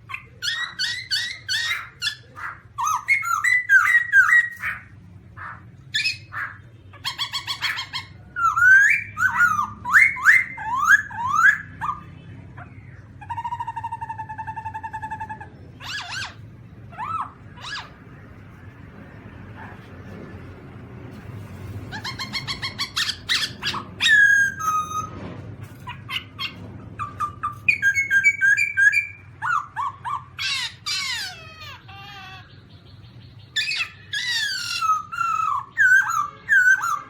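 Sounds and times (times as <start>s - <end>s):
bird whistled calls: 0.1s - 18.1s, 21.9s - 25.2s, 25.8s - 37.0s
buzzy rattling bird call: 21.2s - 32.2s.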